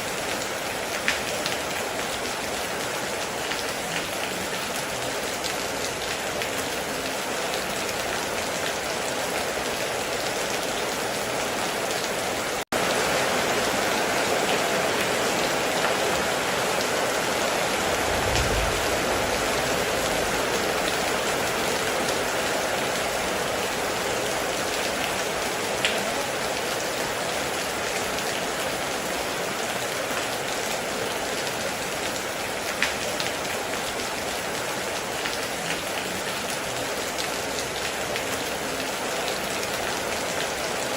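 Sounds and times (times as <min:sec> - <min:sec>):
rain on a metal roof: 0:00.0 - 0:40.9
low rumble: 0:17.8 - 0:21.0.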